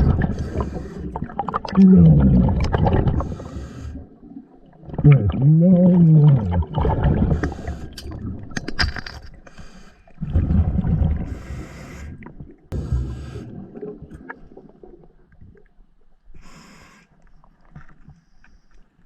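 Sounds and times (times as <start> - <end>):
diver breathing through regulator: 0.0 - 1.3, 3.2 - 4.2, 7.2 - 8.0, 11.3 - 13.8.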